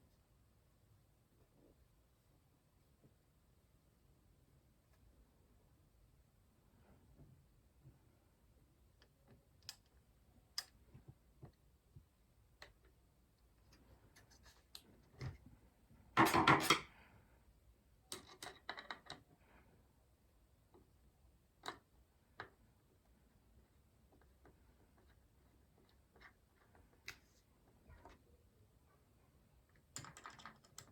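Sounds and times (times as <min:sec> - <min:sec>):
plastic parts clicking and tapping: 0:18.1 - 0:19.3, 0:29.7 - 0:30.9.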